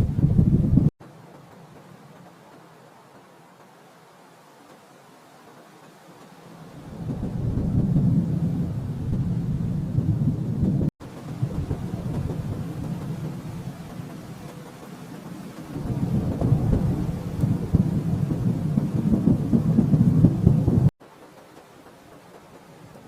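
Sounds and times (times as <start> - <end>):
rolling thunder rumbling: 0.0 - 0.9, 6.5 - 20.9.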